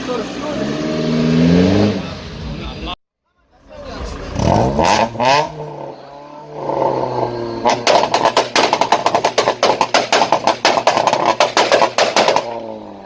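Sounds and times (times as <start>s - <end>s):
car engine revving: 0.0s - 3.0s, 3.6s - 13.0s
exhaust pops and crackles: 7.6s - 12.8s.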